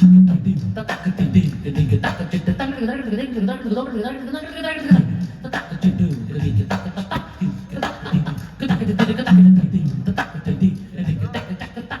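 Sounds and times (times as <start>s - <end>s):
rhythmic percussion strokes: 4.9s - 12.0s.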